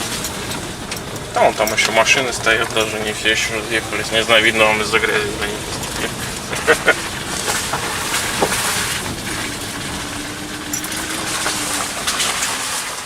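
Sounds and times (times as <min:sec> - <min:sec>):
car engine and tyre noise: 0:00.0 - 0:13.0
wheels crunching and knocking: 0:00.0 - 0:13.0.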